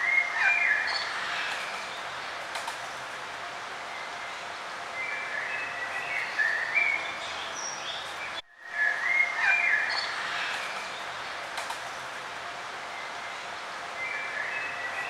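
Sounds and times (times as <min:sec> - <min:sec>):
birds chirping and singing: 0:05.0 - 0:10.8.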